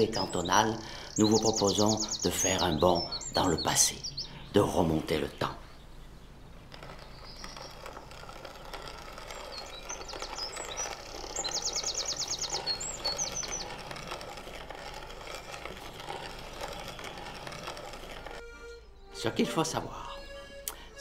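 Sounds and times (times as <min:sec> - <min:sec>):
bird trill: 0:00.0 - 0:14.4
songbird chirping: 0:00.0 - 0:21.0.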